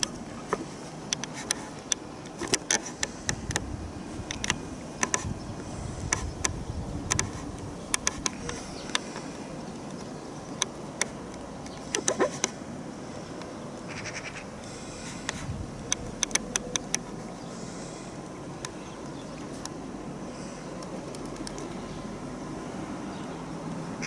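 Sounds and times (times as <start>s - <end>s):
wind rumbling on microphone: 2.4s - 9.7s, 15.2s - 17.0s
sharp clicks and taps: 7.9s - 9.1s, 15.9s - 17.0s.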